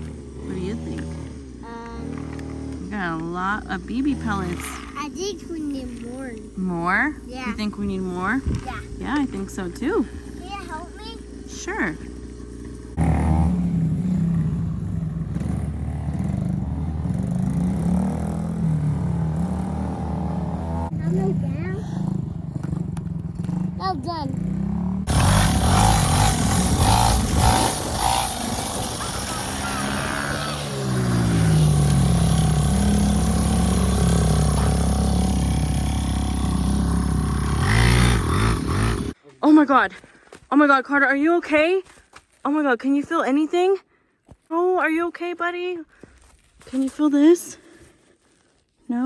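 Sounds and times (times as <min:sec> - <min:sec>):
dirt bike engine running: 0:00.0 - 0:39.2.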